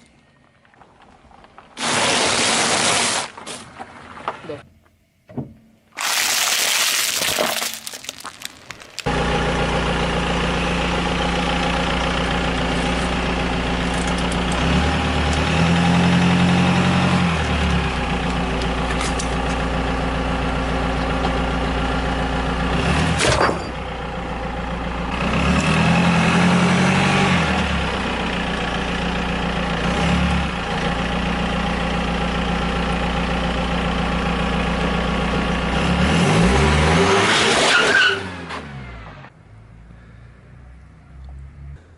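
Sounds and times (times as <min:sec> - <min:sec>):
sharp crack: 0:05.9 - 0:09.1.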